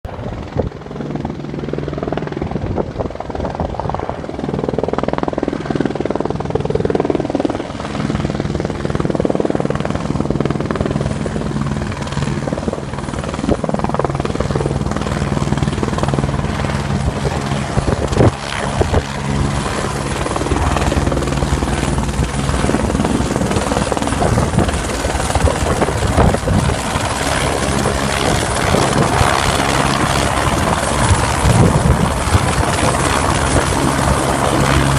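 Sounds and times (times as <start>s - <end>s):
helicopter rotor and turbine drone: 0.0s - 34.9s.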